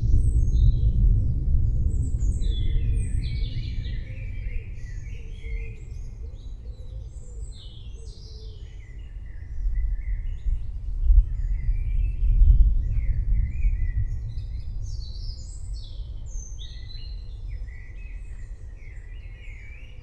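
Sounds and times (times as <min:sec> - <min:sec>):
distant thunder rumbling: 0:00.0 - 0:06.2, 0:09.8 - 0:16.7.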